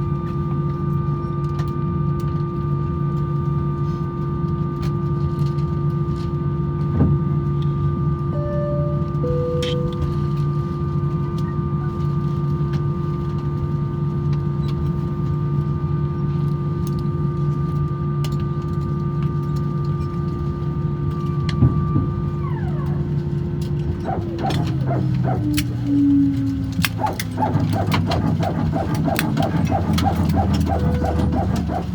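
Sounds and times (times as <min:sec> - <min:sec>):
high whine dropping in pitch: 0:08.4 - 0:10.7, 0:23.9 - 0:31.9
aircraft cabin hum: 0:21.6 - 0:31.9
short rough pulses: 0:24.0 - 0:31.9.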